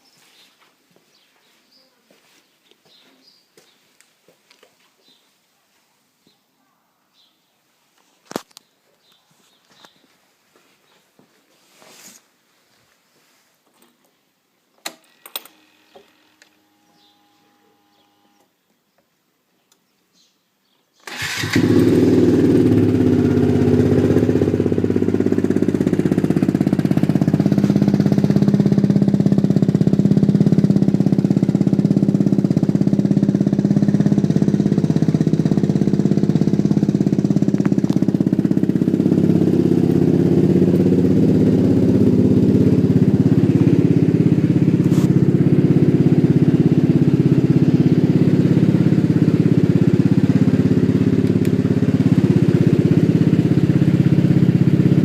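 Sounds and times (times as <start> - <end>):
scooter engine idling: 15.4 - 18.5, 21.1 - 55.0.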